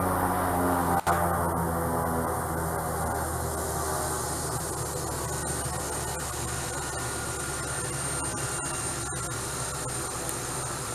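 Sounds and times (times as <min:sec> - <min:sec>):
helicopter engine and rotor noise: 0:00.0 - 0:10.9
high turbine whine: 0:00.0 - 0:10.9.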